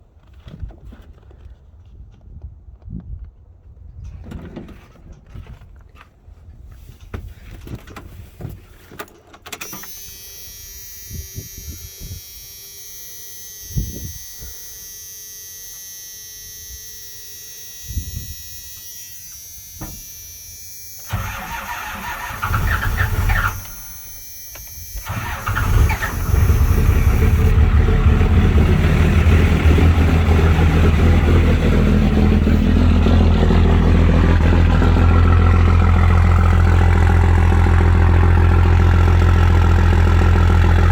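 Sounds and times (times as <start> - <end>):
diesel engine cranking: 20.9 - 40.9
diesel engine idling: 21.1 - 24.0, 24.9 - 40.9
engine clicks and knocks: 25.0 - 40.9.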